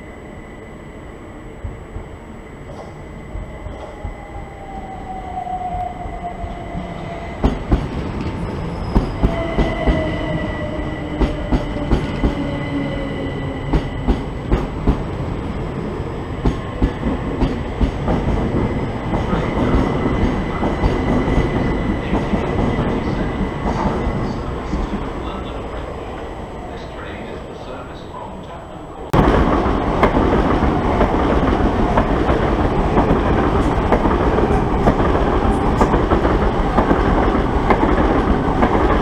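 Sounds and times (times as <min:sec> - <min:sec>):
train whine falling in pitch: 0:02.9 - 0:14.7.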